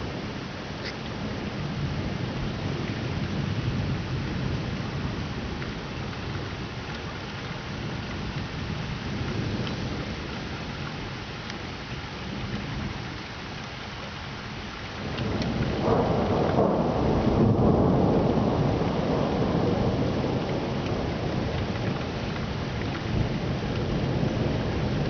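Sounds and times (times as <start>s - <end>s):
steady rain: 0.0s - 25.0s
thunder rumble: 14.9s - 25.0s.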